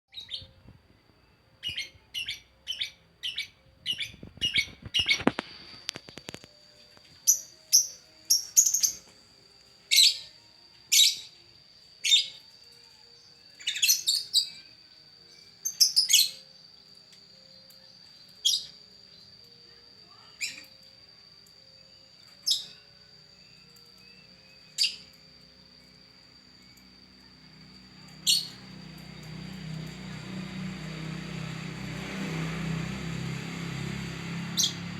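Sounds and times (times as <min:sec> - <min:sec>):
bird chirping: 0:00.1 - 0:06.6, 0:07.2 - 0:09.1, 0:09.9 - 0:11.4, 0:12.0 - 0:19.4, 0:20.1 - 0:20.8, 0:21.7 - 0:25.2, 0:27.6 - 0:30.7
faint high whine: 0:00.1 - 0:34.9.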